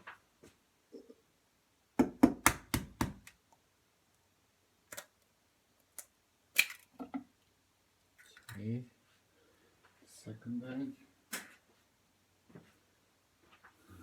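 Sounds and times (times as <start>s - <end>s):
egg tapping on hard edge: 2.0s - 3.3s.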